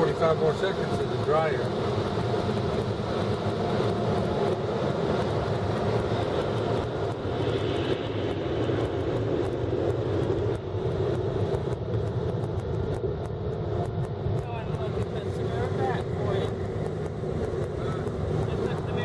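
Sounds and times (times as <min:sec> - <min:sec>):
car wash dryer blowers: 0:00.0 - 0:01.7, 0:14.4 - 0:19.0.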